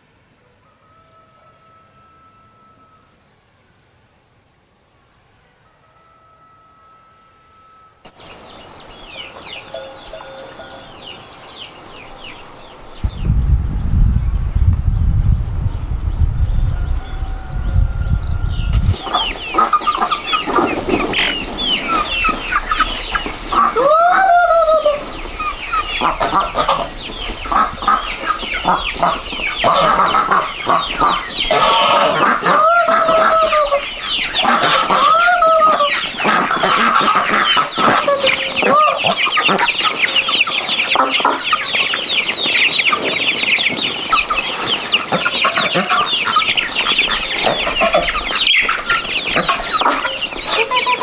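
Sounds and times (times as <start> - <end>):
chickens clucking and cheeping: 0.0 - 51.0
rooster crowing: 0.4 - 3.3, 5.2 - 8.1, 9.4 - 11.3, 16.2 - 21.3, 22.0 - 27.0, 28.2 - 42.2
insect buzz: 7.0 - 23.8
low rumble: 13.0 - 19.0.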